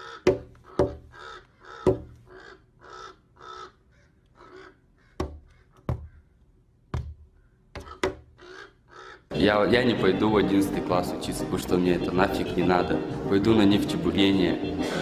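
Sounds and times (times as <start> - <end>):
bird giving harsh calls: 0.0 - 6.4, 7.2 - 9.3
sharp knocks: 0.2 - 1.2, 1.8 - 2.2, 5.2 - 6.2, 6.9 - 8.3.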